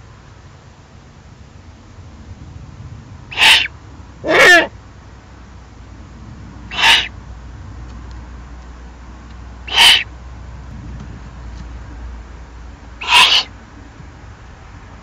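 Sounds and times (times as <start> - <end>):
owl harsh rasping calls: 3.3 - 4.8, 6.7 - 7.2, 9.6 - 10.1, 13.0 - 13.5.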